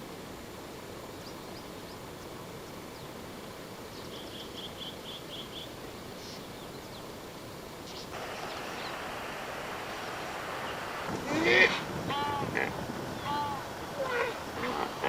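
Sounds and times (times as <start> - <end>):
steady hiss: 0.0 - 15.0
faint bird calls: 7.8 - 15.0.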